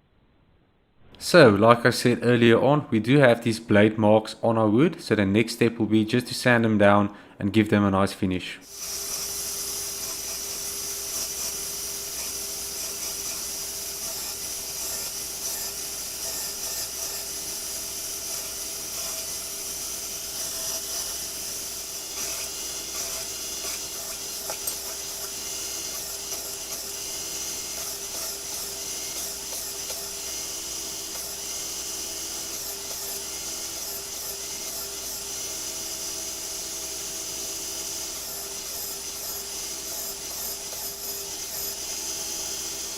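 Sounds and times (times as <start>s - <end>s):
power sander on wood: 8.6s - 42.9s.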